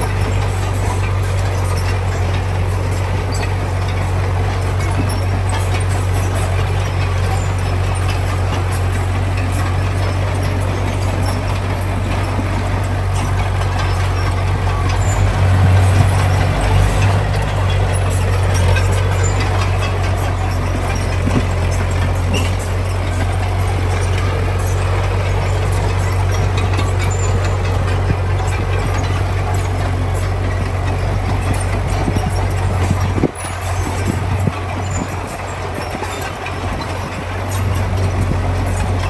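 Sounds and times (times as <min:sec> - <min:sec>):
heavy diesel engine running: 0:00.0 - 0:39.0
light clicks and rattles: 0:00.0 - 0:39.0.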